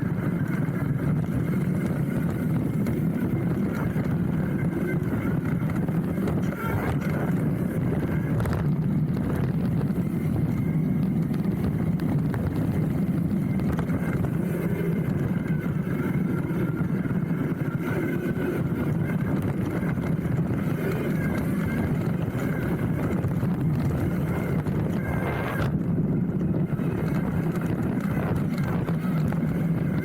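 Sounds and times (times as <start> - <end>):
bike tyres rumbling on dirt: 0.0 - 30.0
wind on microphone: 0.0 - 30.0.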